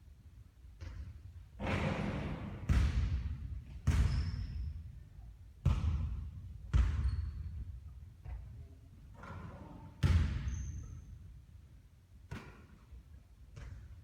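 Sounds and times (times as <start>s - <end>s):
basketball hitting hard surface: 0.8s - 4.6s, 5.6s - 7.2s, 9.2s - 10.5s.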